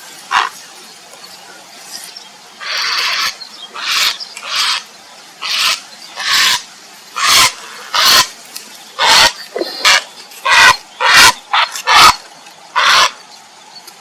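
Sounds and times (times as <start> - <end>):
heron harsh croaking calls: 0.3 - 0.6, 2.6 - 8.3, 9.0 - 13.2.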